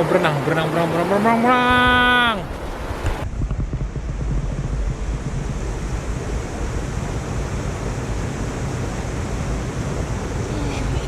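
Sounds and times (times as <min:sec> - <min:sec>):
waterfall rushing: 0:00.0 - 0:03.2, 0:05.5 - 0:11.0.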